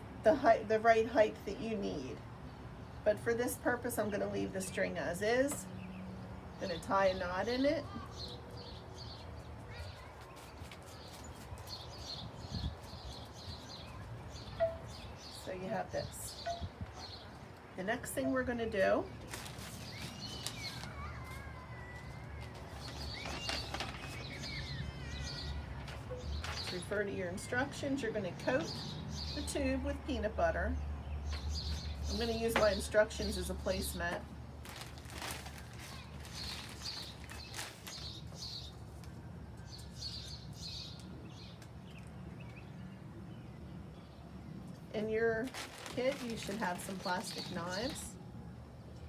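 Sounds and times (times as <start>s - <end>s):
birds chirping and calling: 6.6s - 17.4s, 19.2s - 29.7s, 45.5s - 48.2s.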